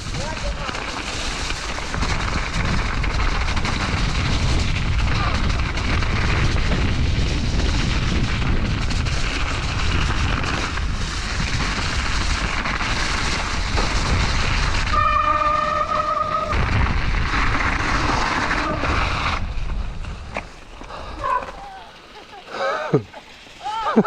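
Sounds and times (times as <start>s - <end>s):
wind buffeting microphone: 0.0s - 22.1s
steady high squeal: 14.9s - 16.7s.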